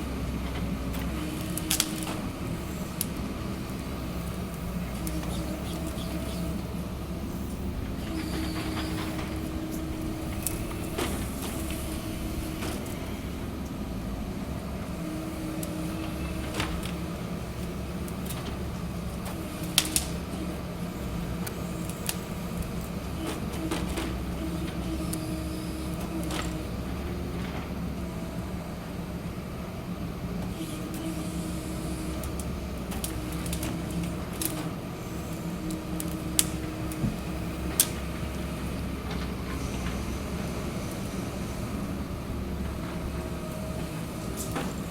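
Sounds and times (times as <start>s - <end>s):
harvester engine running: 0.0s - 44.9s
hydraulic tone: 3.7s - 13.3s.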